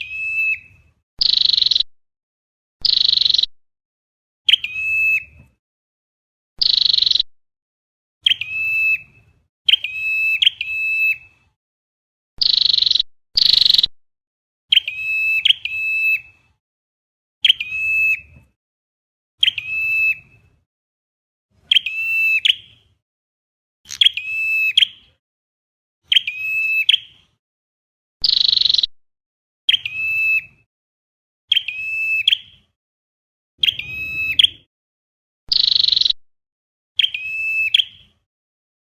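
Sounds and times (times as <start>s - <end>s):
recorded bird calls: 0.0s - 1.9s, 2.8s - 3.5s, 4.4s - 5.5s, 6.6s - 7.3s, 8.2s - 11.6s, 12.4s - 13.9s, 14.7s - 16.6s, 17.4s - 18.6s, 19.4s - 20.6s, 21.6s - 23.0s, 23.9s - 25.2s, 26.0s - 27.4s, 28.2s - 28.9s, 29.7s - 30.7s, 31.5s - 32.8s, 33.6s - 34.7s, 35.5s - 36.2s, 37.0s - 38.3s.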